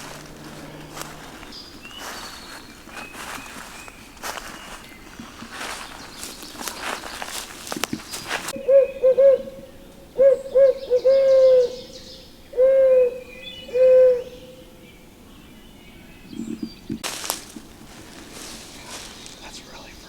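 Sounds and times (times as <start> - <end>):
brief rustle: 0.0 - 8.5
owl call hooting: 0.0 - 15.0.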